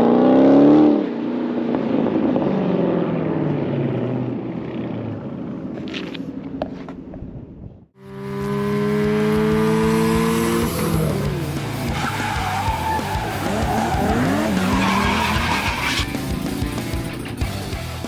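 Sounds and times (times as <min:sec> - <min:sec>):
car engine at full throttle: 0:08.0 - 0:18.0
tyres squealing: 0:10.6 - 0:16.4.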